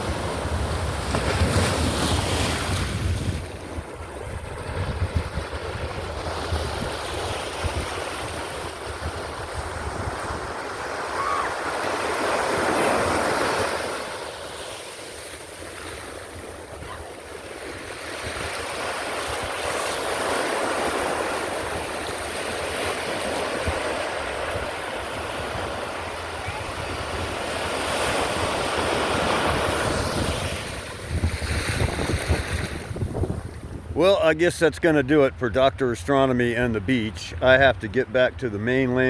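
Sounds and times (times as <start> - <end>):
wind buffeting microphone: 0.0 - 10.6, 23.4 - 34.0
waves breaking on shore: 0.0 - 35.4.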